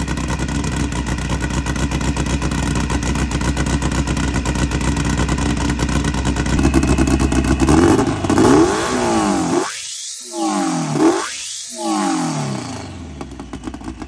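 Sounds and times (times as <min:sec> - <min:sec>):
car engine revving: 0:06.4 - 0:14.0.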